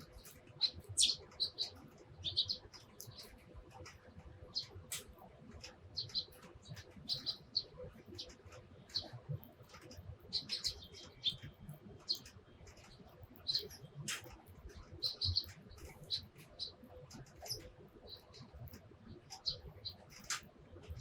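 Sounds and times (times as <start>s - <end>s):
sparrows chirping: 0.0s - 21.0s.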